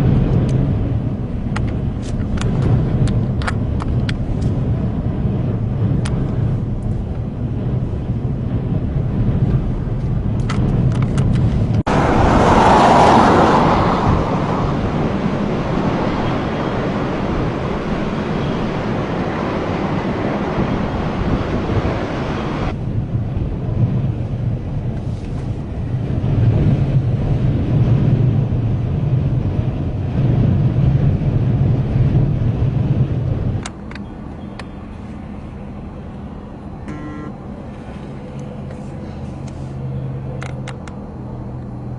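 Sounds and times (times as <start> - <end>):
hissing blast of wind noise: 0.0 - 33.9
road noise: 0.0 - 41.9
strong wind buffeting: 0.0 - 41.9
vehicle engine running: 14.1 - 41.9.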